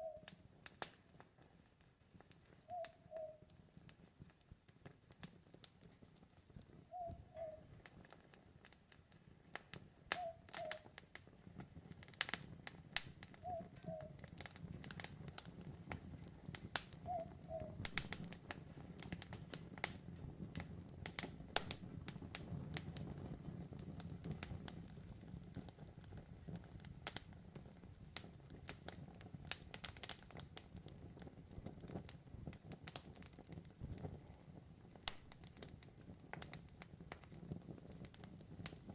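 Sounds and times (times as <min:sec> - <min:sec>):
owl hooting: 0:00.0 - 0:00.3, 0:02.7 - 0:03.4, 0:06.9 - 0:07.7, 0:10.2 - 0:10.9, 0:13.4 - 0:14.2, 0:17.0 - 0:17.8
campfire crackling and popping: 0:00.0 - 0:38.9
low rush of burning: 0:03.6 - 0:38.9.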